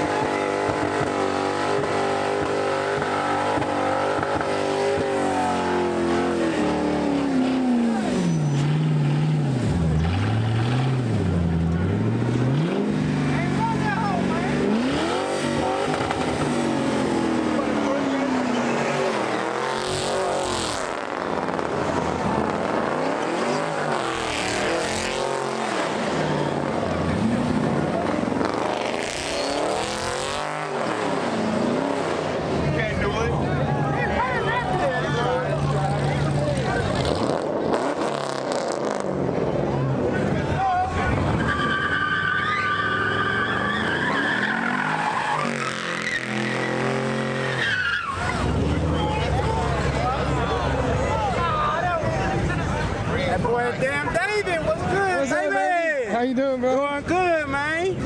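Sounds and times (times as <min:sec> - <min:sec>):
car engine revving: 0:00.0 - 0:55.0
tyres squealing: 0:40.8 - 0:50.9.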